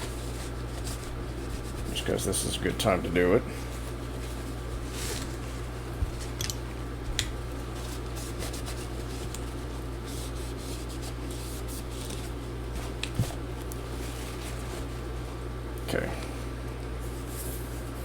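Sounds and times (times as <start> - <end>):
rubbing and scratching: 0.0 - 6.4, 7.4 - 15.4
steady low hum: 0.0 - 18.0.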